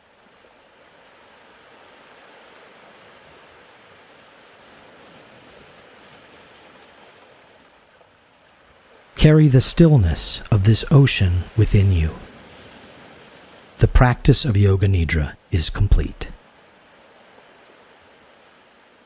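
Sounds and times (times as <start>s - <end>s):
ocean waves washing: 8.9s - 19.0s.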